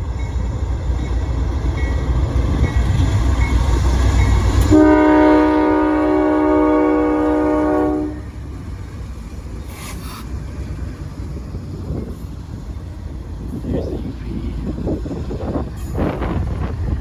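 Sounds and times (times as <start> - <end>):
locomotive air horn chord: 4.7 - 8.3
brief hiss: 9.6 - 10.3.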